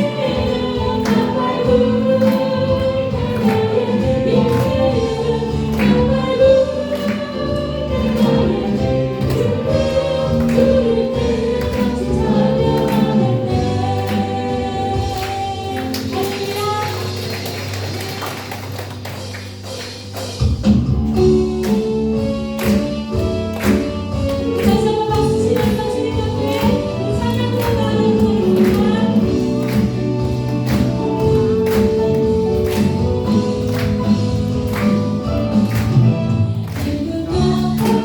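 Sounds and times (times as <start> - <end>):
group singing worship song: 0.0 - 16.4, 24.4 - 38.0
band playing steady beat: 0.0 - 38.0.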